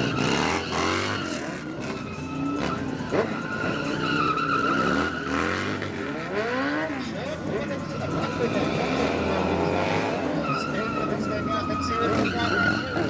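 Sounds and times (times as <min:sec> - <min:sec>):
motorcycle engine revving: 0:00.0 - 0:13.0
tire squeal: 0:00.0 - 0:13.0.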